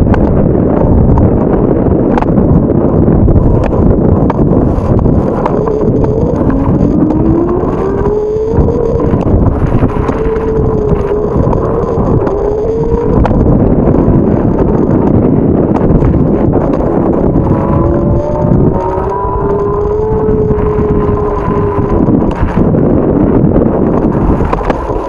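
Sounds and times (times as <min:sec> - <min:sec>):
wind buffeting microphone: 0:00.0 - 0:25.0
wavering rising tone: 0:03.4 - 0:15.1, 0:15.7 - 0:22.7.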